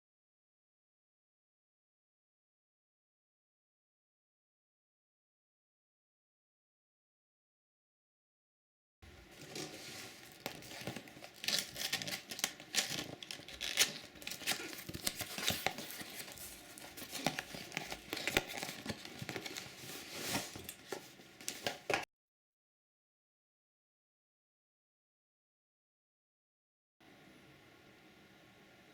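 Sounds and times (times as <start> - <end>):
packaging crinkling and rustling: 9.2 - 22.0.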